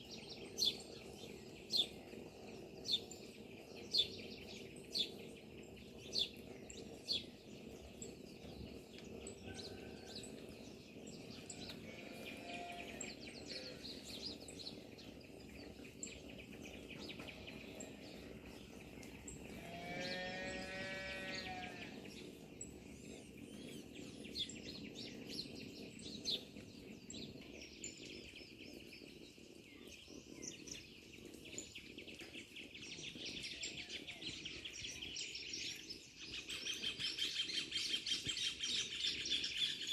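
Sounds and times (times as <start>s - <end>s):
birds chirping and singing: 0.0s - 39.9s
farm animal call: 11.6s - 14.4s, 19.0s - 22.1s.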